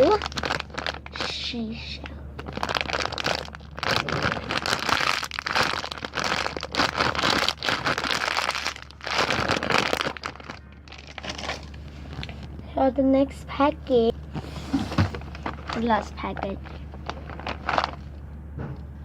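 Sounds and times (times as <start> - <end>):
plastic packaging crinkling: 0.0 - 1.6, 2.4 - 12.5, 14.9 - 18.2.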